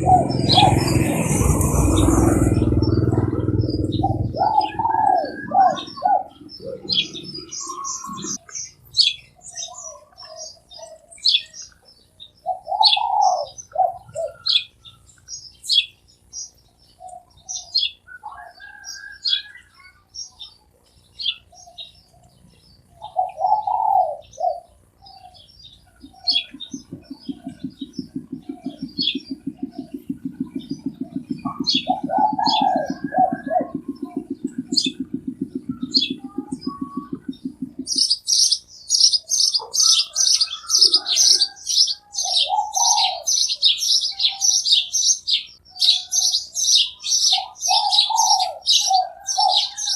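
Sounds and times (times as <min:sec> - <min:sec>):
doves cooing: 0:00.0 - 0:08.7, 0:09.3 - 0:15.0, 0:21.6 - 0:49.9
low pulsing drone: 0:00.0 - 0:09.0, 0:25.7 - 0:39.5
small birds chirping: 0:00.0 - 0:49.9.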